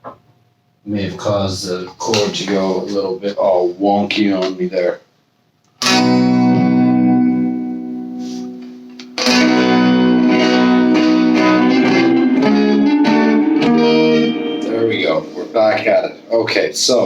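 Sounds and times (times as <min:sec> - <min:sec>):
electric guitar chords: 0:05.8 - 0:16.4.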